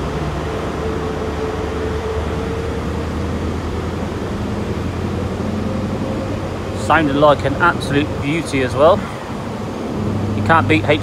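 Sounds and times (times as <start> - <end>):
diesel train engine drone: 0.0 - 11.0
high-pitched whine: 0.0 - 11.0.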